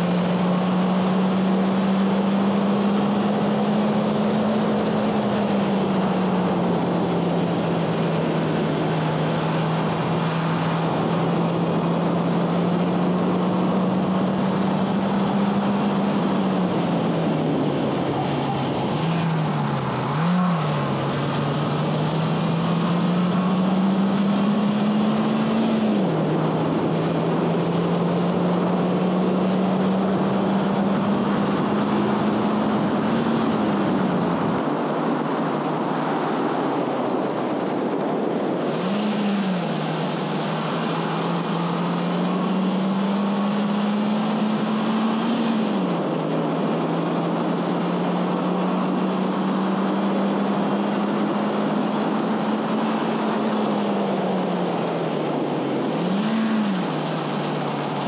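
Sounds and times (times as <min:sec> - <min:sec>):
car engine revving through gears: 0:00.0 - 0:34.6, 0:38.5 - 0:58.0
wind and road noise: 0:00.0 - 0:58.0.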